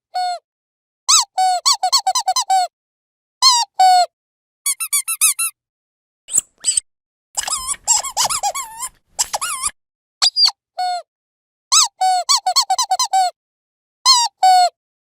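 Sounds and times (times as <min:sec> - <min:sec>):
squeaky dog toy: 0:01.1 - 0:02.7, 0:03.4 - 0:04.1, 0:04.7 - 0:05.6, 0:06.3 - 0:06.8, 0:07.4 - 0:11.0, 0:11.7 - 0:13.4, 0:14.1 - 0:14.8.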